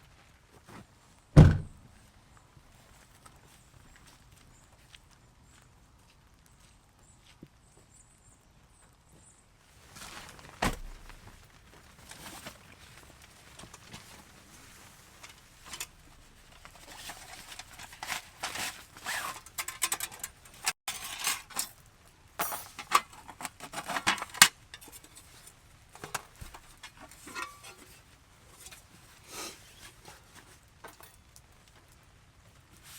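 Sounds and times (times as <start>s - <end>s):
faint steady background noise: 0.0s - 32.9s
rustling: 9.7s - 20.8s
objects clinking and knocking: 16.5s - 21.8s, 22.4s - 28.0s.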